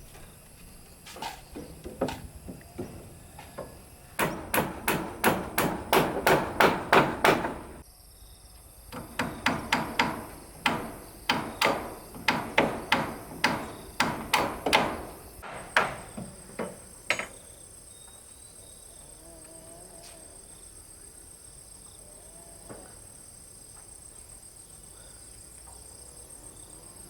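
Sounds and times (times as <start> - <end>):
insect chorus: 0.0 - 27.0
hammer blows on wood: 1.2 - 7.8, 9.0 - 16.4.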